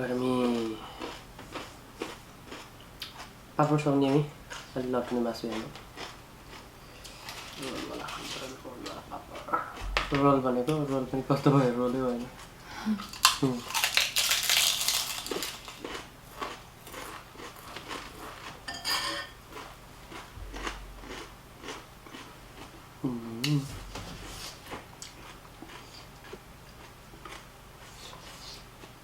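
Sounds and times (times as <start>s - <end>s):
dishes and cutlery clicking: 18.7s - 19.4s.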